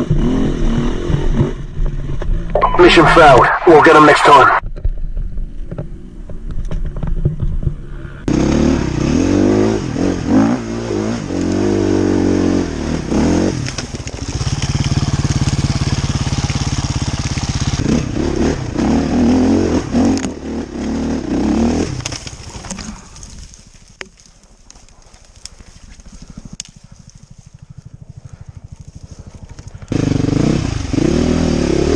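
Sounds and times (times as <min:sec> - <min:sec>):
dirt bike engine revving: 0:08.3 - 0:22.1, 0:27.6 - 0:31.9.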